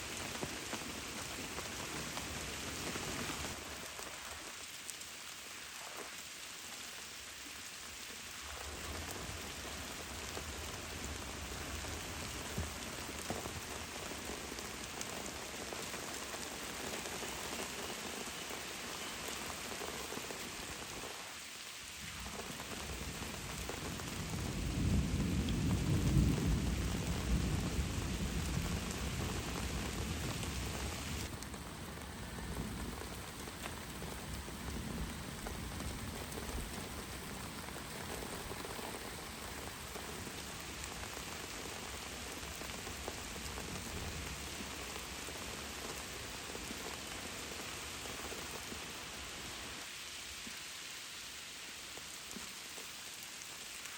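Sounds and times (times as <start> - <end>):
steady rain falling: 0.0 - 53.9
low rumble of thunder: 22.1 - 40.5.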